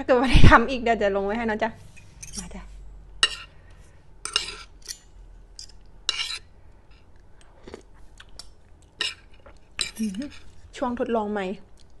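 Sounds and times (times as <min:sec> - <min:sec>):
utensils clinking against a dish: 0:02.0 - 0:02.5, 0:03.2 - 0:03.6, 0:04.3 - 0:07.0, 0:09.0 - 0:10.6.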